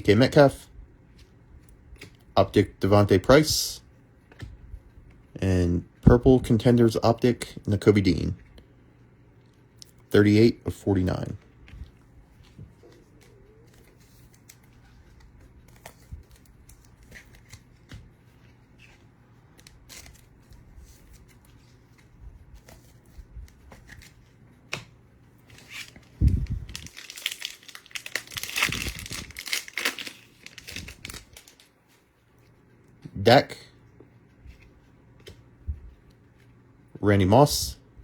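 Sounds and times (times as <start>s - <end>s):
foil wrapper tearing and crinkling: 25.6s - 31.7s.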